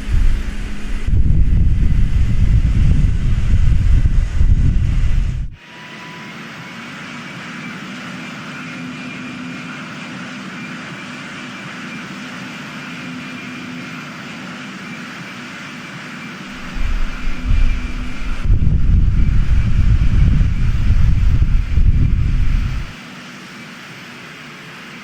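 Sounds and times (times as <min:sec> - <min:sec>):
airplane engines running: 0:00.0 - 0:05.6, 0:06.6 - 0:25.0
wind buffeting microphone: 0:00.0 - 0:05.6, 0:16.5 - 0:23.0.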